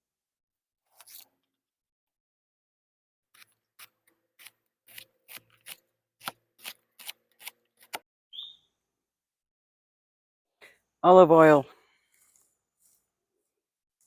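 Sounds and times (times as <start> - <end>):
knife cutting food: 3.4 - 8.0.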